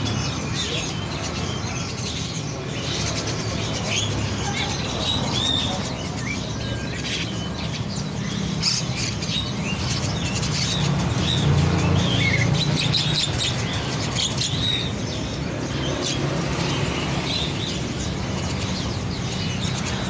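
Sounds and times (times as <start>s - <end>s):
small songbirds chirping: 0.0s - 20.0s.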